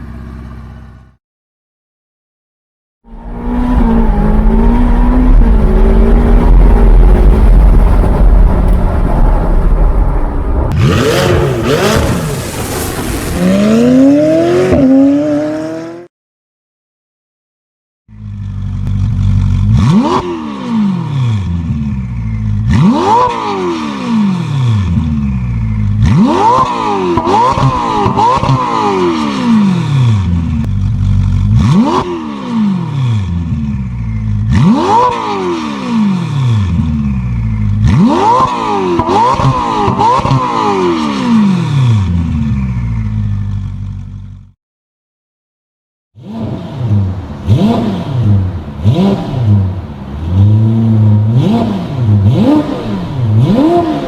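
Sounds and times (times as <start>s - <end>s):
sports car engine revving: 10.7s - 12.3s, 18.2s - 43.8s, 46.2s - 54.0s.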